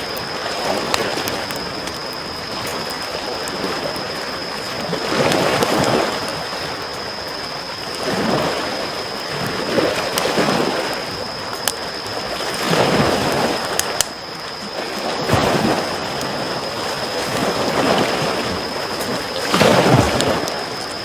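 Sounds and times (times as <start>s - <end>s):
campfire crackling and popping: 0.0s - 21.0s
small waves lapping on shore: 0.0s - 21.0s.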